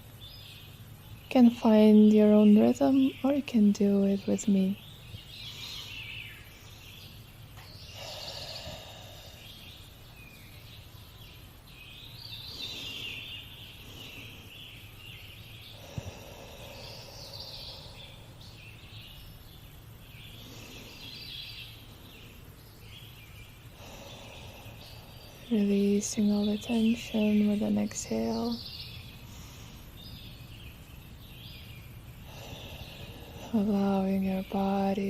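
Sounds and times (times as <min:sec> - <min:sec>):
faint steady hum: 0:00.0 - 0:35.0
deep breathing: 0:05.3 - 0:06.9, 0:07.7 - 0:10.2, 0:12.4 - 0:18.7, 0:19.6 - 0:22.5, 0:23.4 - 0:25.6, 0:29.0 - 0:30.6, 0:31.5 - 0:33.8.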